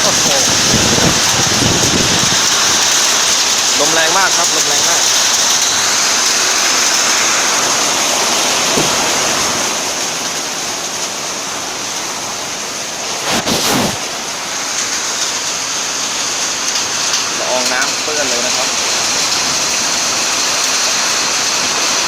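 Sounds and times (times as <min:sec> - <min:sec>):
strong wind: 0:00.0 - 0:03.8, 0:11.6 - 0:16.2
heavy rain: 0:00.0 - 0:22.0.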